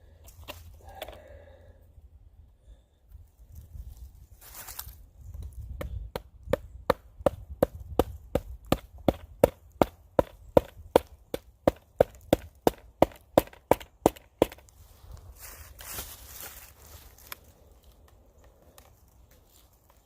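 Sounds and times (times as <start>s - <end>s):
chopping into dry wood: 5.5s - 14.7s.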